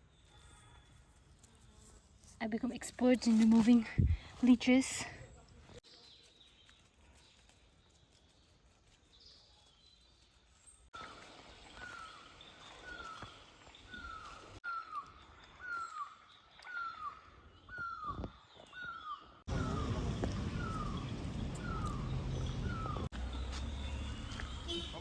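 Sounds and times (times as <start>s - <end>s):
faint outdoor background: 0.0s - 25.0s
bird calling: 11.0s - 25.0s.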